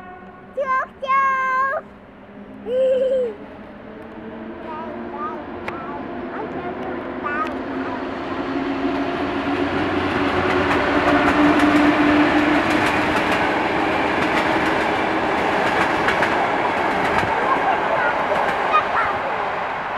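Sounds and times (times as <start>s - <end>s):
electric locomotive hum: 0.0s - 19.9s
train coaches rumbling: 0.0s - 19.9s
wheels clicking over rail joints: 10.2s - 19.9s.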